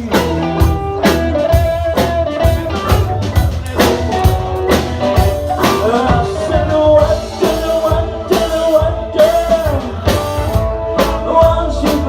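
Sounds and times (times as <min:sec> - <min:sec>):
bass guitar: 0:00.0 - 0:12.0
drum kit beat: 0:00.0 - 0:12.0
electric guitar: 0:00.0 - 0:12.0.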